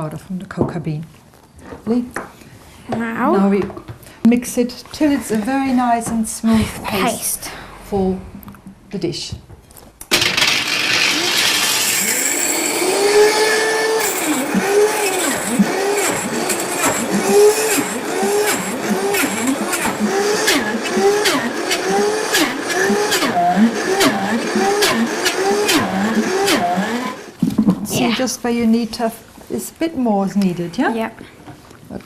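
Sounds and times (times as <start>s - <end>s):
food processor grinding: 10.0s - 27.4s.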